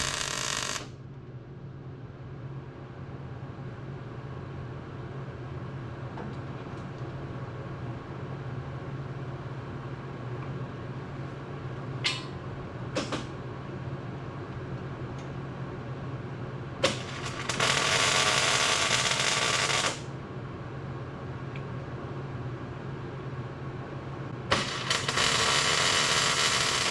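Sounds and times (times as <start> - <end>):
steady low hum: 0.0 - 18.2, 19.6 - 26.9.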